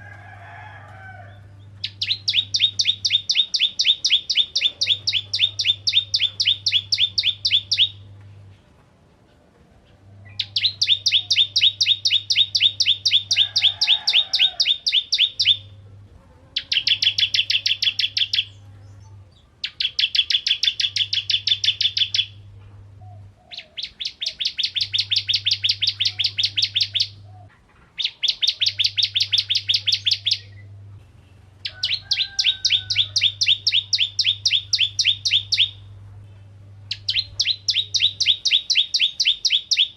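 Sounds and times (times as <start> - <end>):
bird singing fast sharp notes: 1.7 - 8.1, 10.3 - 15.8, 16.6 - 19.0, 19.6 - 22.4, 23.5 - 27.2, 28.0 - 30.7, 31.6 - 35.9, 36.9 - 39.9.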